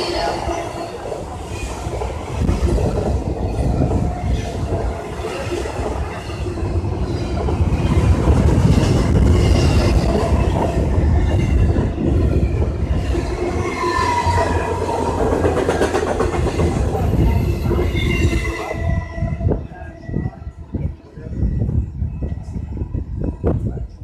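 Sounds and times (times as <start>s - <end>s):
freight train rumble and clatter: 0.0s - 24.0s.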